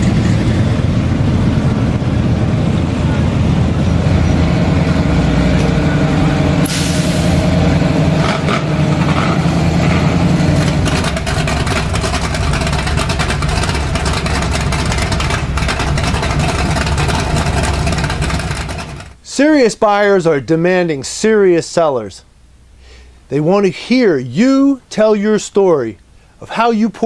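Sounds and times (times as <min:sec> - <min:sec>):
vehicle engine rumbling: 0:00.0 - 0:24.4
short burst of hiss: 0:06.6 - 0:07.4.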